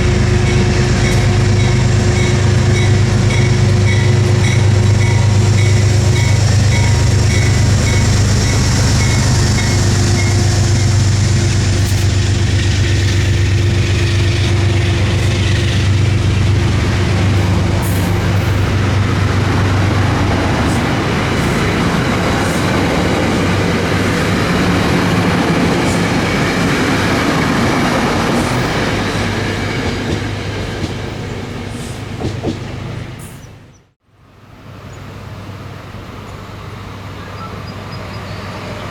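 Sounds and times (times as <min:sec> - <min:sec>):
passenger train passing: 0:00.0 - 0:38.9.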